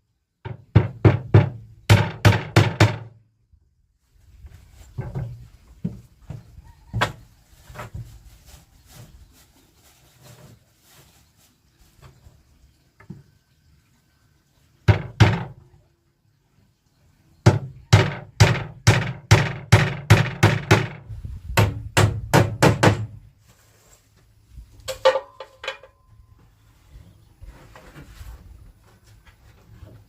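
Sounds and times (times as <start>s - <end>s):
hammer striking wood: 0.5s - 3.1s, 17.5s - 21.0s, 21.6s - 23.2s.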